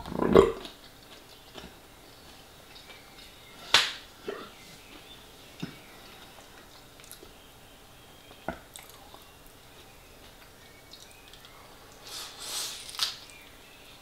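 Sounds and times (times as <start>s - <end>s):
mouth smacks and clicks while chewing: 0.6s - 3.9s, 4.9s - 7.4s, 8.3s - 12.0s.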